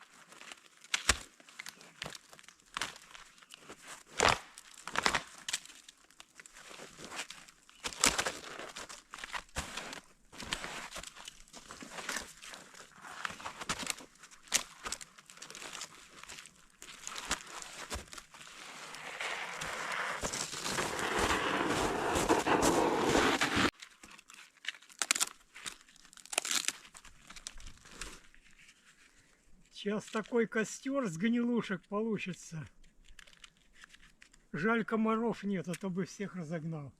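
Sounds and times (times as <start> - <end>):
kindling crinkling and snapping: 0.0 - 30.4, 32.7 - 34.5
rustling noise: 6.6 - 24.5.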